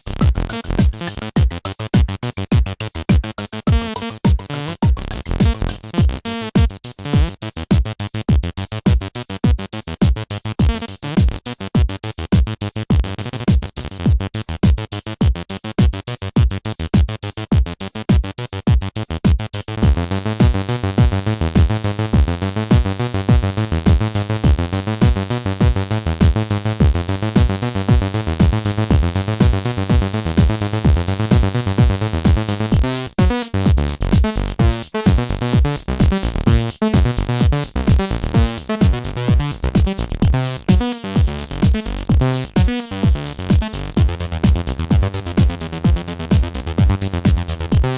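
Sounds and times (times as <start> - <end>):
synthesizer bassline: 0.0 - 6.0, 19.8 - 47.9
drum machine beat: 0.0 - 47.9.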